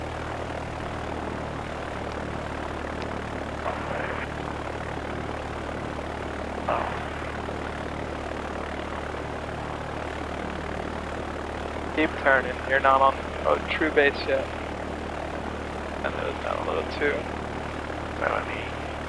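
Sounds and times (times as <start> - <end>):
light aircraft engine droning: 0.0 - 19.0.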